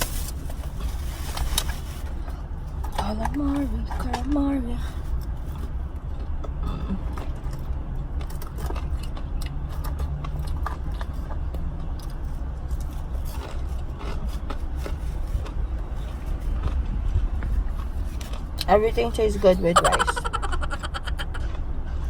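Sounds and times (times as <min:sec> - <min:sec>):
food packaging crinkles and clicks: 0:00.0 - 0:04.4, 0:05.0 - 0:18.7
car air conditioning rumble: 0:00.0 - 0:07.5, 0:12.2 - 0:22.0
chewing: 0:00.6 - 0:19.2.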